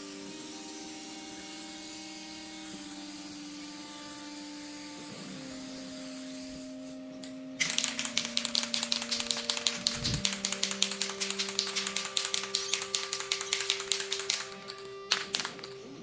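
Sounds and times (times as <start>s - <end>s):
background music: 5.6s - 16.0s
spray can rattling when shaken: 7.6s - 15.8s.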